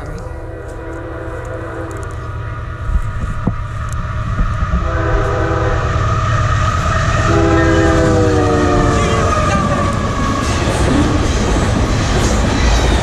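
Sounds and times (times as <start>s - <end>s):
train rumbling: 0.0s - 13.0s
locomotive air horn blasts: 0.4s - 2.2s, 4.8s - 6.0s, 7.2s - 9.5s.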